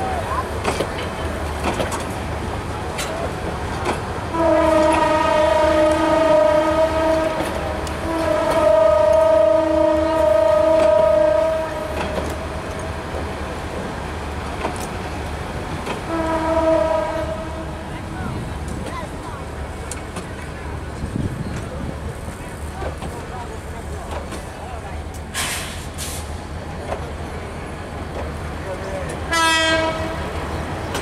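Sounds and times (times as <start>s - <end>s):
train wheels rumbling and clacking: 0.0s - 31.0s
train horn blasts: 4.3s - 12.0s, 16.0s - 17.8s, 29.3s - 30.3s.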